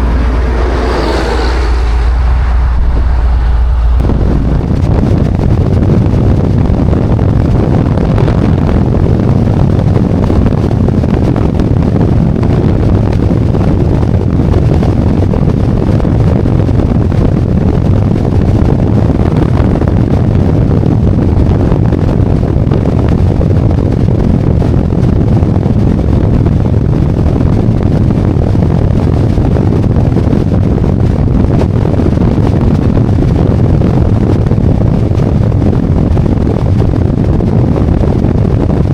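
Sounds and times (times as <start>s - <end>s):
motorcycle engine: 0.0s - 6.8s
wind rush on microphone: 0.0s - 38.9s.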